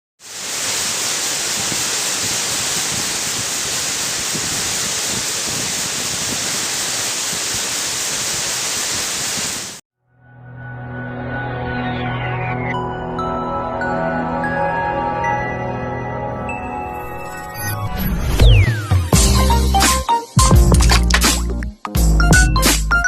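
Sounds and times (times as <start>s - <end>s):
water rushing: 0.2s - 9.8s
music: 10.0s - 23.0s.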